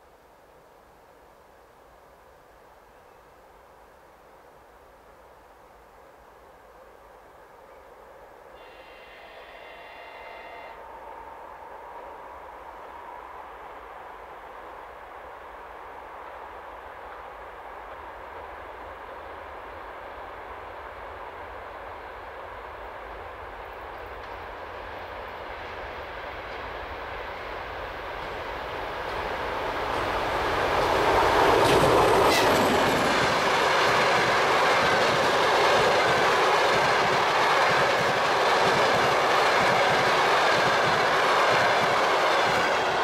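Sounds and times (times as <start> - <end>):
diesel train passing: 7.9 - 43.0
wheels clattering on rails: 28.1 - 43.0.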